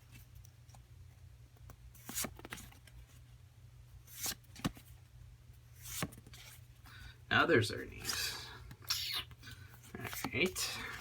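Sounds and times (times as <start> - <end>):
trading cards being flipped: 1.6 - 3.0, 4.1 - 4.8, 5.8 - 6.6, 8.0 - 11.0.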